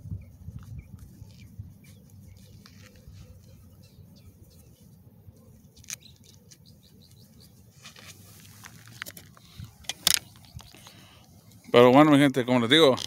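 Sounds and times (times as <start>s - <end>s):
camera handling clicks and knocks: 8.9s - 10.8s.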